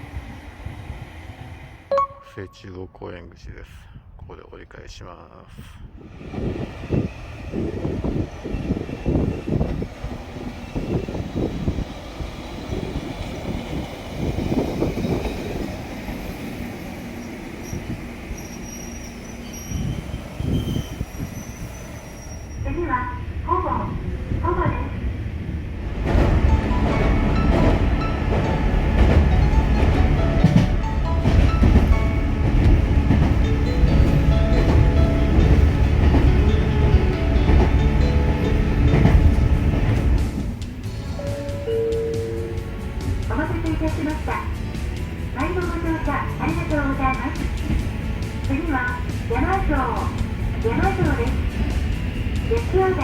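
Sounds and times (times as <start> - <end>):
background music: 1.9 - 2.9, 26.0 - 53.0
train wheels rumbling on track: 6.0 - 53.0.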